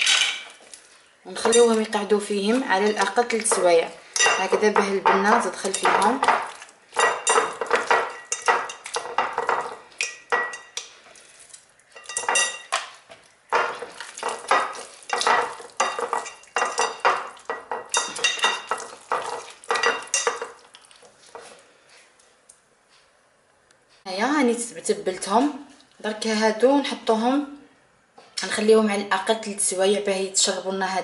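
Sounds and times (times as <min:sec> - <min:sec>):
dish clinking and scraping: 0:02.9 - 0:10.8, 0:12.0 - 0:12.8, 0:13.5 - 0:20.6.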